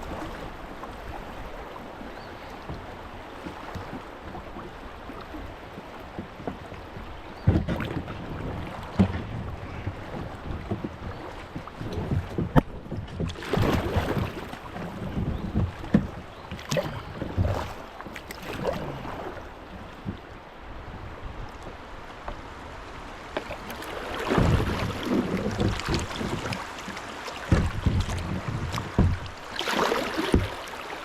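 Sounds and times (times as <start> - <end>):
paddle splashing in water: 0.0 - 31.0
sharp knocks: 27.5 - 29.4.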